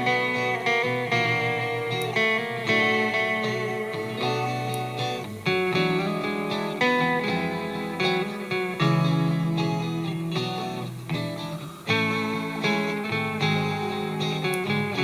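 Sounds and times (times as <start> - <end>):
guitar plucked notes and chords: 0.0 - 15.0.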